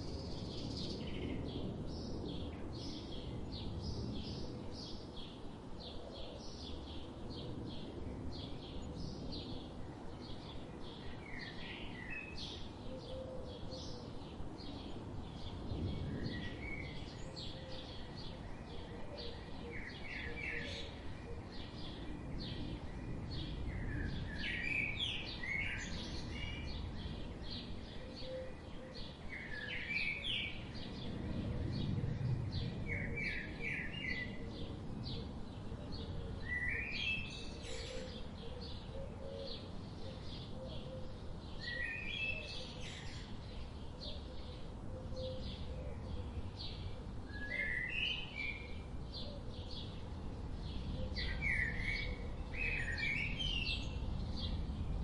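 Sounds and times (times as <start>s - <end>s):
birds singing: 0.0s - 55.0s.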